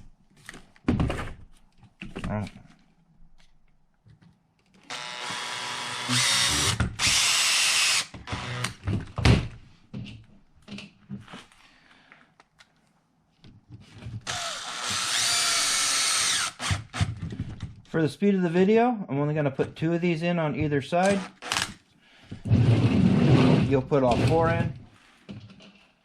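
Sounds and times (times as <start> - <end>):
cordless drill driving screws: 4.9 - 8.8, 14.2 - 17.2, 21.0 - 21.8.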